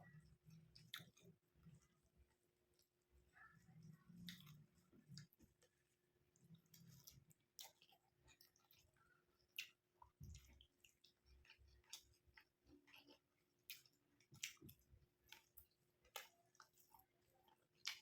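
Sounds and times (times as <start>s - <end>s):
wet chewing: 0.5s - 1.9s, 6.4s - 18.0s.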